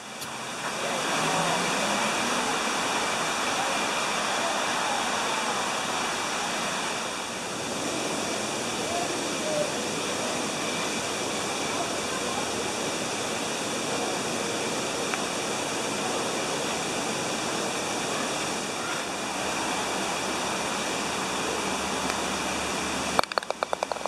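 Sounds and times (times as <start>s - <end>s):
waterfall rushing: 0.0s - 24.0s
sharp clicks: 23.2s - 24.0s.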